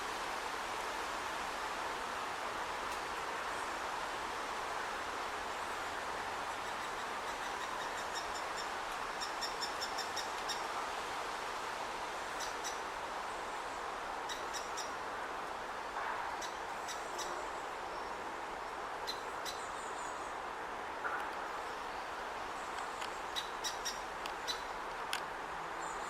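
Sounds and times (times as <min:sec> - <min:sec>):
steady background hiss: 0:00.0 - 0:26.0
woodpecker chick calling: 0:22.8 - 0:25.2.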